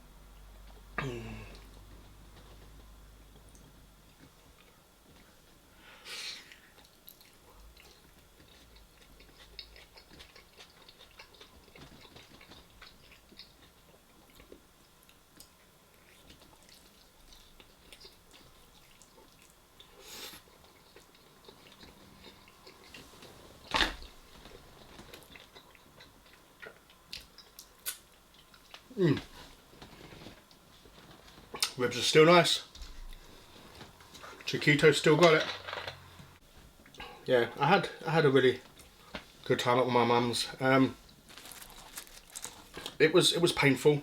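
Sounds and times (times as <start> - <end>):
wet chewing mouth sounds: 6.5 - 14.6, 15.4 - 29.3.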